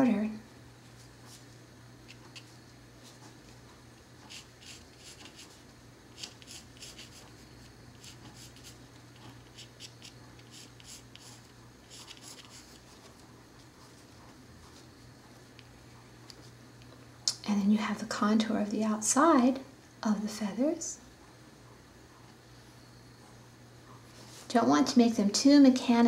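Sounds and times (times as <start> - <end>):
faint steady hum: 0.0 - 26.0
colored pencil scratching on paper: 4.2 - 14.9.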